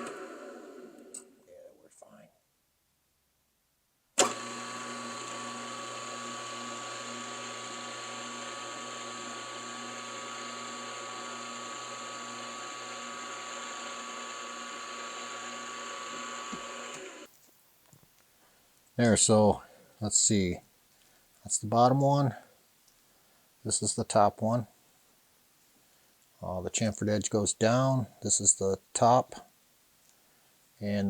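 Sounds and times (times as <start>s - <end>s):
machine tool motor whining: 0.0s - 1.3s, 4.2s - 17.3s.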